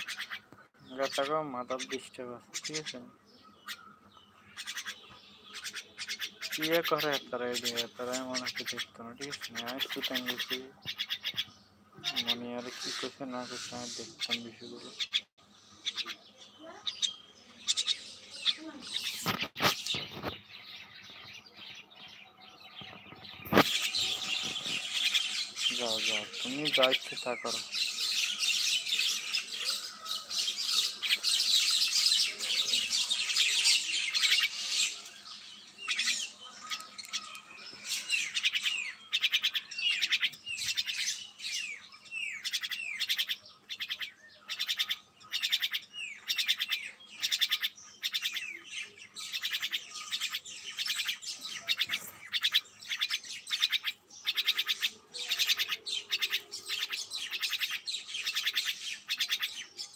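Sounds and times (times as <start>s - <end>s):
birds chattering: 0.0s - 59.9s.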